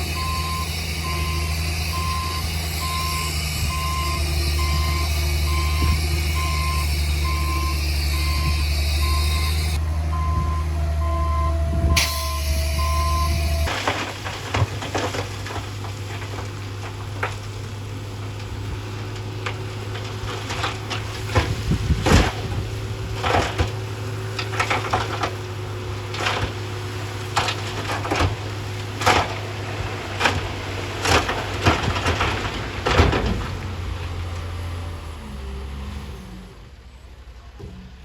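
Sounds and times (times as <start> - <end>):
heavy machine engine running: 0.0 - 38.0
rocks clattering together: 13.6 - 33.8.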